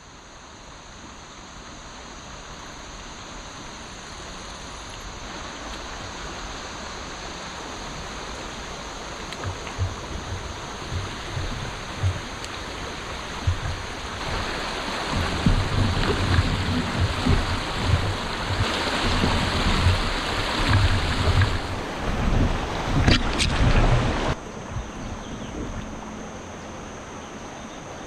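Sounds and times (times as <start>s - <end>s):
water rushing along kayak: 0.0s - 28.0s
wind buffeting microphone: 7.9s - 26.0s.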